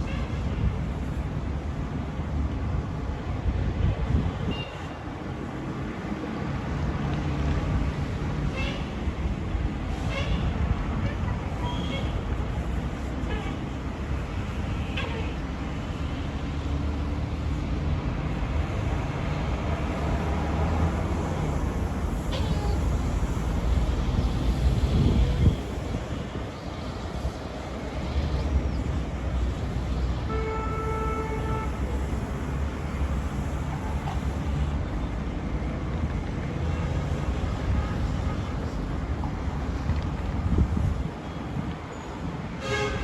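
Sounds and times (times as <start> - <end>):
city traffic rumble: 0.0 - 43.0
wind buffeting microphone: 21.6 - 27.6, 39.5 - 41.8.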